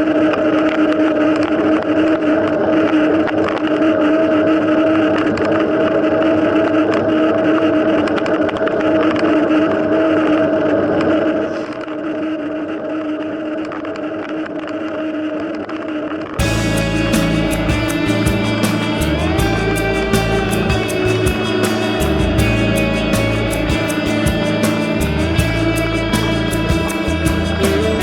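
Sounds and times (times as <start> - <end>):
steady drone: 16.4 - 28.0
wind noise: 16.4 - 28.0.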